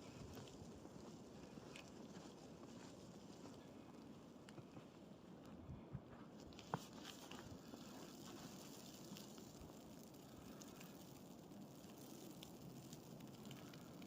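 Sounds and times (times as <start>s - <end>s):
soft ticks and crackles: 0.0s - 14.0s
faint low hiss: 6.5s - 14.0s.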